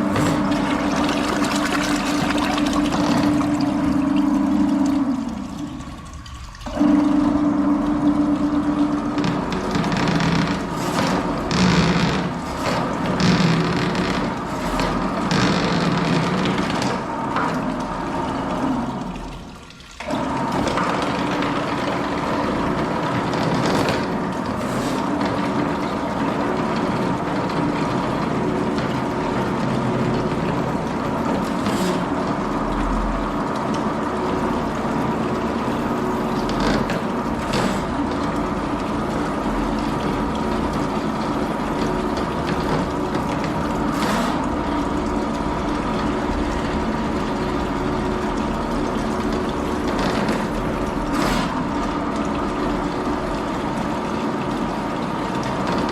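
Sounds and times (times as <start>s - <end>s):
water noise: 0.0s - 11.6s
drain-cleaning machine running: 0.0s - 55.9s.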